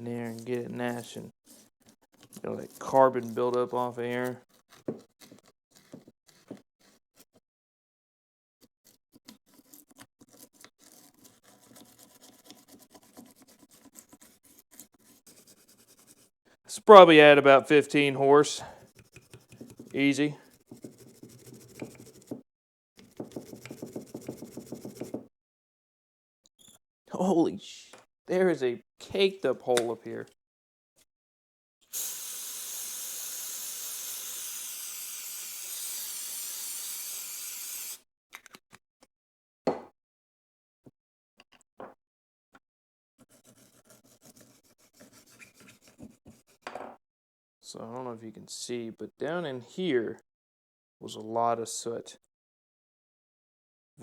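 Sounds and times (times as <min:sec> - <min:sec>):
brush scrubbing metal: 0:18.7 - 0:22.4
aerosol spray hissing: 0:31.9 - 0:38.0.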